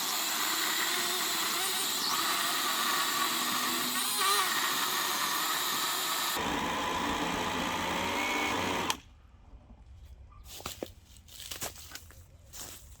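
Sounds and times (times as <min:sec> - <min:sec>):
electric chainsaw running: 0:00.0 - 0:09.0.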